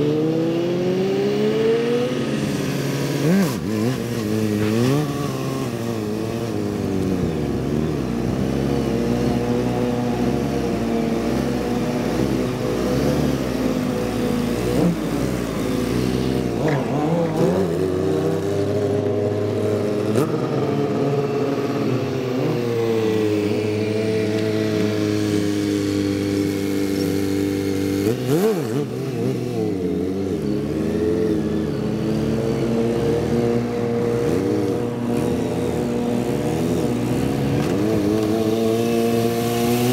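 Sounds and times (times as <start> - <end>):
motorcycle engines revving: 0.0 - 39.9
motorcycle passing by: 0.0 - 39.9.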